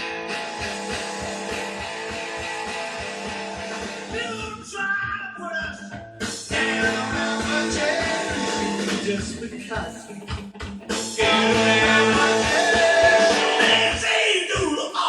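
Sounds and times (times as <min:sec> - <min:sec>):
rock music with singing: 0:00.0 - 0:15.0.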